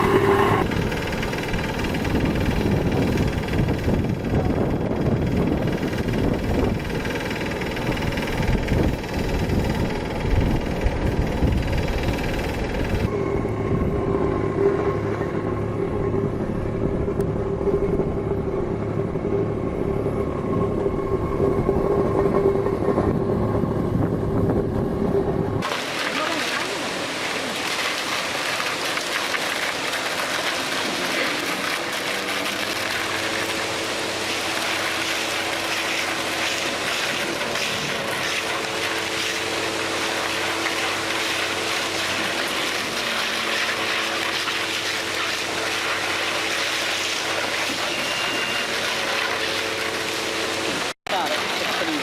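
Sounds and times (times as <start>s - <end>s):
faint hum tones: 0.0s - 5.1s.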